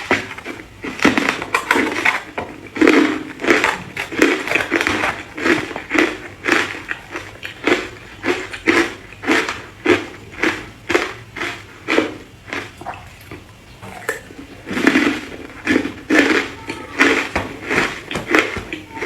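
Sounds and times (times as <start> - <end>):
ice crunched between teeth: 0.0 - 12.8.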